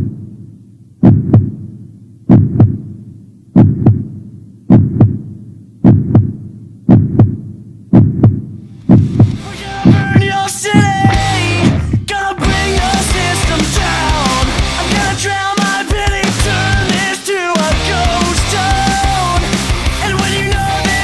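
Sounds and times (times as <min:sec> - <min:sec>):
heartbeat low thumps: 0:01.0 - 0:01.6, 0:02.3 - 0:02.9, 0:03.6 - 0:04.1, 0:04.7 - 0:15.1.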